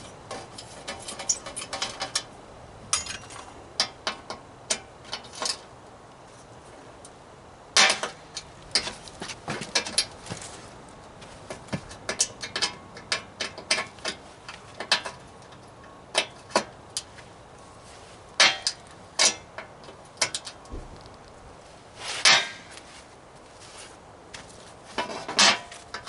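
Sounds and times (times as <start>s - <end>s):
metallic clinks and knocks: 0.0s - 2.3s, 2.9s - 4.2s
ringing metal clanks: 2.9s - 3.5s.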